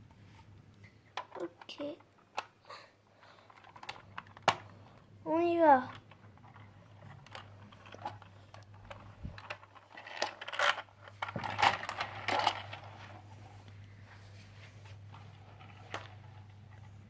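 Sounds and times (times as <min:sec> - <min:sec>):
plastic toy pieces clattering: 0:03.4 - 0:05.0, 0:05.8 - 0:13.2.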